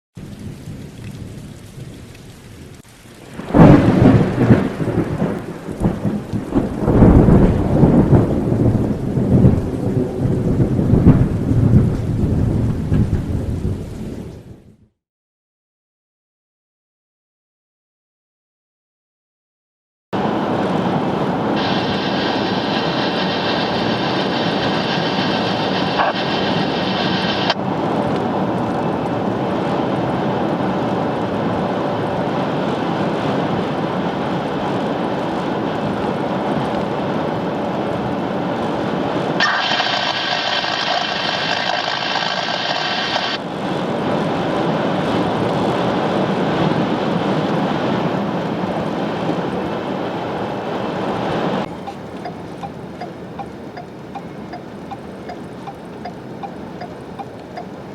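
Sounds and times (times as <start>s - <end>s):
blizzard wind rushing: 20.2s - 52.8s
higher hiss: 21.6s - 27.6s, 39.4s - 43.4s.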